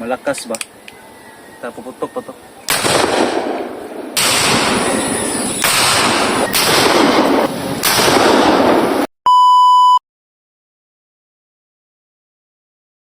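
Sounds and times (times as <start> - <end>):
cannon blasts: 2.7 - 9.1
short electronic beep: 9.3 - 10.0.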